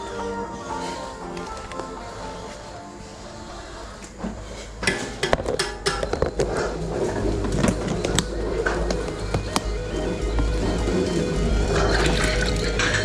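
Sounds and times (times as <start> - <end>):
hard objects clattering and knocking: 4.2 - 13.0.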